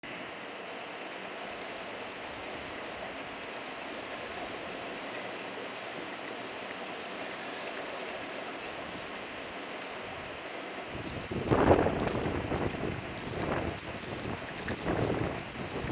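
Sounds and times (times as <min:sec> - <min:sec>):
hail pattering: 0:11.0 - 0:15.9.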